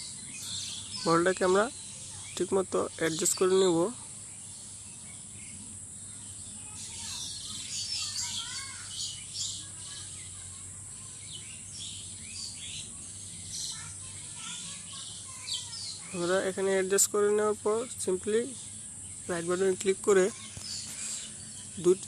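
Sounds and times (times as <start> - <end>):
birds chirping: 0.0 - 22.0
high insect drone: 0.0 - 22.0.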